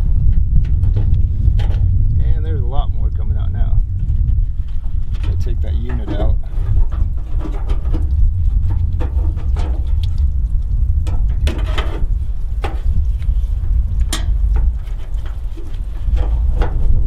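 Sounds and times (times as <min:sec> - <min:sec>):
steady low rumble: 0:00.0 - 0:17.0
metal clicks and knocks: 0:14.0 - 0:15.5.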